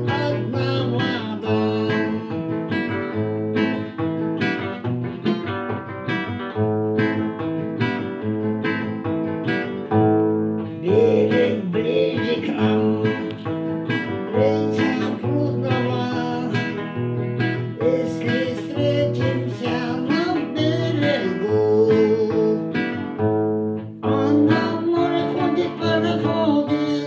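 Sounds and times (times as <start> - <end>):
person singing: 0.0 - 2.6, 10.8 - 17.0, 17.6 - 23.1, 24.0 - 27.0
acoustic guitar strumming: 0.0 - 27.0.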